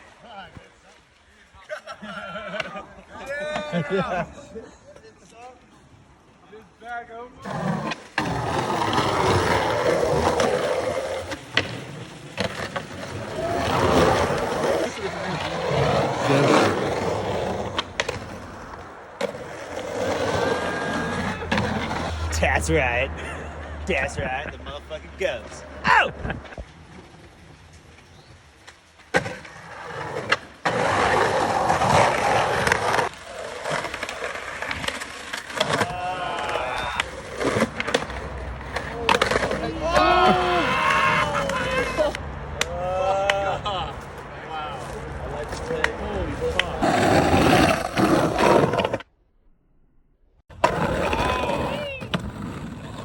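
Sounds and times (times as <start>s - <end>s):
skateboard wheels rolling on concrete: 0.0s - 49.2s, 50.5s - 53.0s
skateboard clacks: 7.5s - 22.1s, 28.6s - 43.6s.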